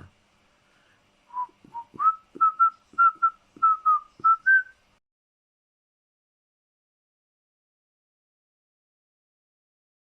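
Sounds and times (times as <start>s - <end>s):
short whistled notes: 1.3s - 4.8s.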